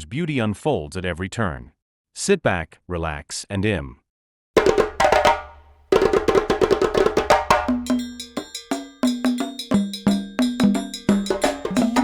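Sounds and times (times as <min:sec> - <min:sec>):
background music with rapid percussion: 0:04.6 - 0:12.0
low repeating melodic line: 0:07.9 - 0:12.0.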